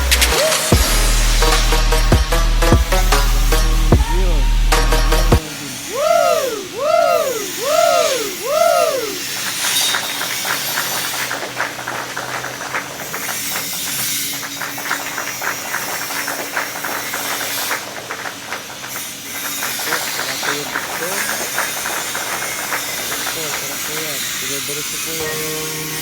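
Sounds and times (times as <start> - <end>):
welding arc crackling: 0.0 - 26.0
rising and falling tones: 3.0 - 9.4.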